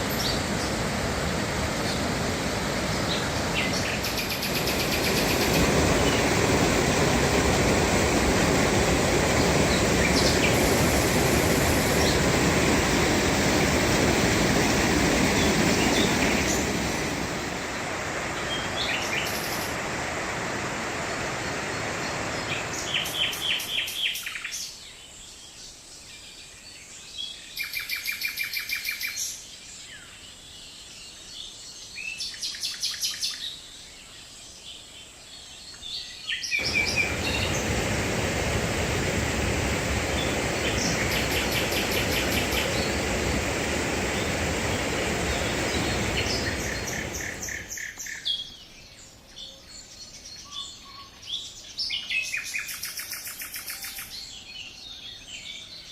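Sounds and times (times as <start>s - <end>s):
water rushing over cascade: 0.0s - 24.2s, 36.6s - 47.8s
songbirds trilling: 2.8s - 19.8s, 36.4s - 38.4s, 39.7s - 49.6s.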